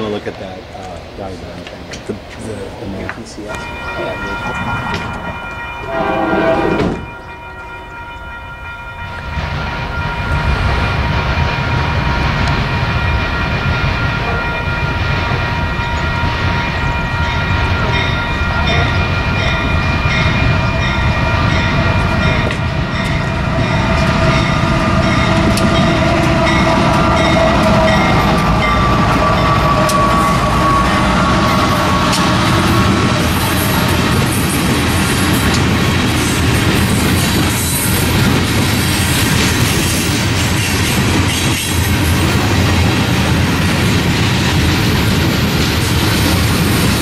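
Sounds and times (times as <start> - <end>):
freight train passing: 0.0 - 47.0
high ringing bell: 3.4 - 34.6.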